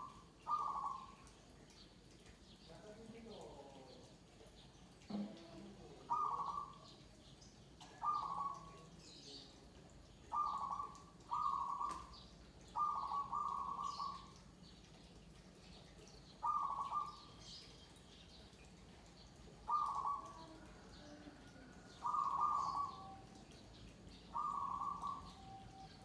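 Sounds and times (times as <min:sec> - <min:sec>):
doves cooing: 0:00.0 - 0:01.4, 0:05.1 - 0:07.0, 0:07.8 - 0:08.9, 0:10.2 - 0:14.4, 0:16.4 - 0:17.6, 0:18.8 - 0:26.0
small birds chirping: 0:00.0 - 0:26.0.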